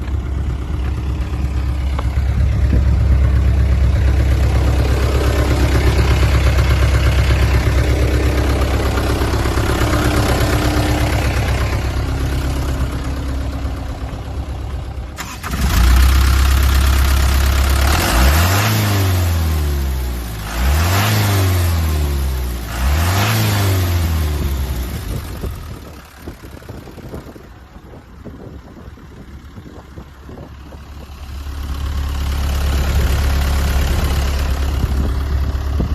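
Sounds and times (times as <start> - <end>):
diesel truck engine idling and revving: 0.0 - 35.9.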